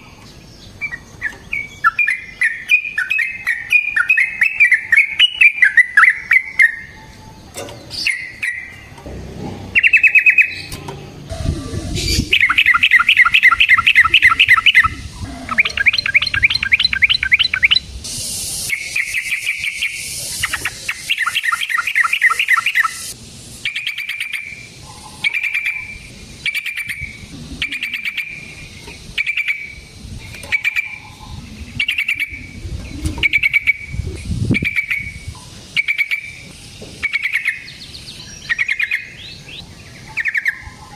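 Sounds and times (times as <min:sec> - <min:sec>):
bird singing trilled notes: 0:00.0 - 0:40.9
short bird calls: 0:11.4 - 0:17.9.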